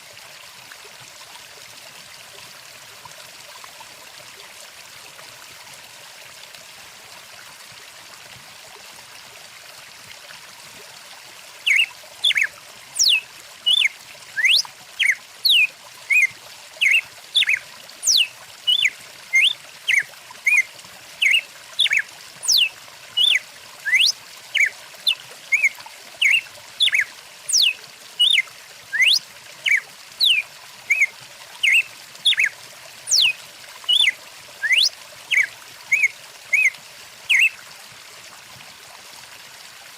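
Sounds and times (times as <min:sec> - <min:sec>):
stream running: 0:00.0 - 0:39.9
bird chirps and whistles: 0:11.7 - 0:20.6, 0:21.2 - 0:32.5, 0:33.1 - 0:36.7, 0:37.3 - 0:37.6.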